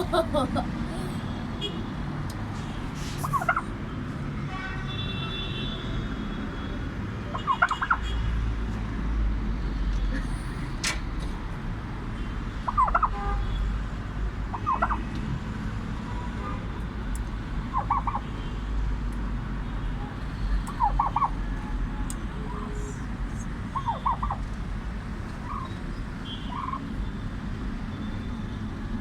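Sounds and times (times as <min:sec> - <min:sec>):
turkey gobbling: 0:03.3 - 0:03.6, 0:07.5 - 0:07.9, 0:12.7 - 0:13.1, 0:14.6 - 0:15.0, 0:17.7 - 0:18.2, 0:20.8 - 0:21.4, 0:23.8 - 0:24.4, 0:25.4 - 0:25.7, 0:26.5 - 0:26.8.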